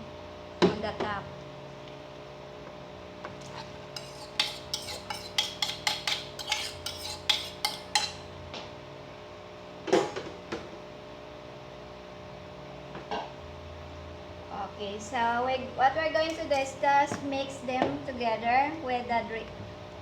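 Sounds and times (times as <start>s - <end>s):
utensil clinking against bowl: 3.4s - 8.3s.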